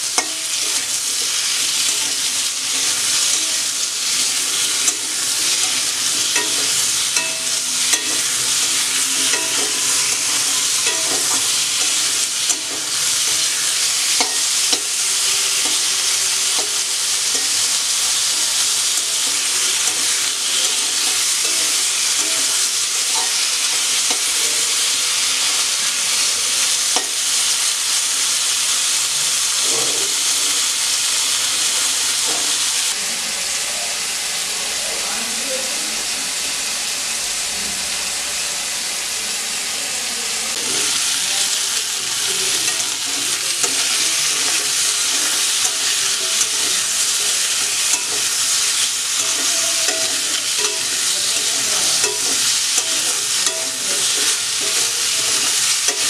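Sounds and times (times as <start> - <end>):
spatula scraping a metal pan: 0.0 - 27.2, 40.5 - 56.0
potato wedges sizzling in oil: 0.0 - 56.0.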